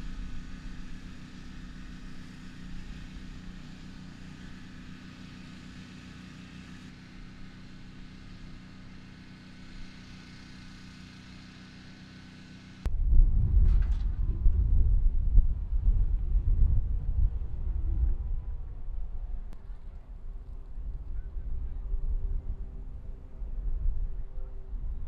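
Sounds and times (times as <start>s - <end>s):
engine running steadily: 0.0s - 25.0s.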